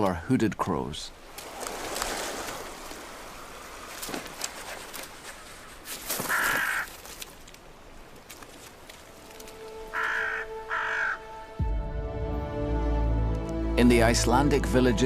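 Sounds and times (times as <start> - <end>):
crow cawing: 6.1 - 7.1, 9.6 - 11.6.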